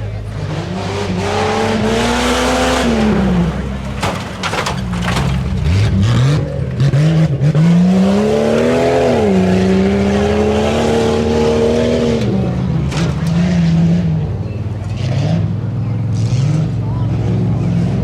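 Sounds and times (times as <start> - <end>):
sharp knocks: 3.6 - 5.9.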